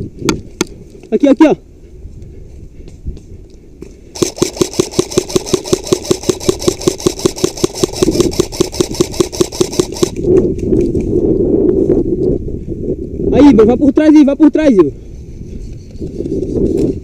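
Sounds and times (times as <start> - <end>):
airsoft rifle full-auto burst: 4.2 - 10.2.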